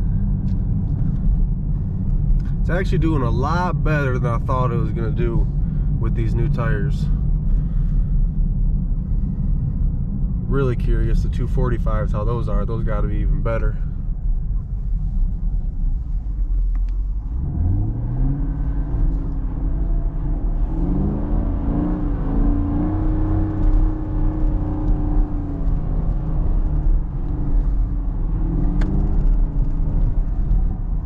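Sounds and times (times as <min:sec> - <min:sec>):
car engine revving: 0:17.0 - 0:31.0.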